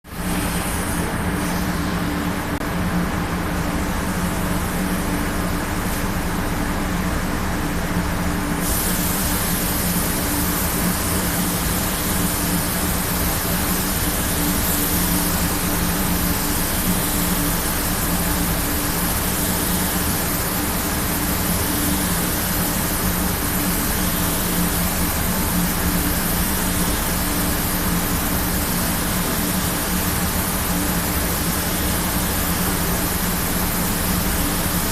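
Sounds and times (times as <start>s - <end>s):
compressed air hissing: 8.6s - 34.9s.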